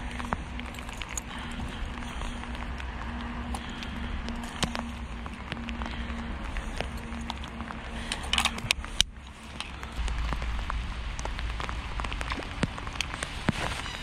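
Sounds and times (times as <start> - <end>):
cluster of clicks: 0.0 - 13.6
rain pattering: 0.0 - 14.0
raindrops ticking near microphone: 0.0 - 14.0.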